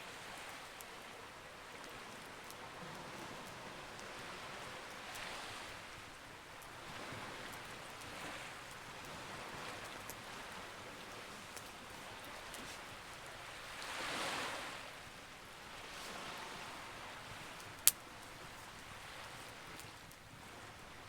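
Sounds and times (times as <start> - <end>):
sea waves: 0.0 - 21.0
campfire crackling and popping: 17.4 - 20.3.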